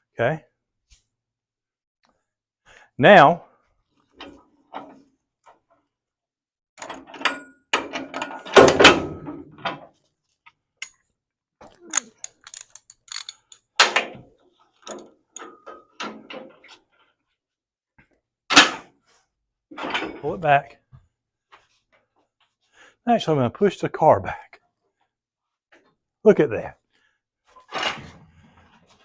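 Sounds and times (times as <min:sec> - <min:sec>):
metallic clanks and rattles: 0:14.8 - 0:16.5.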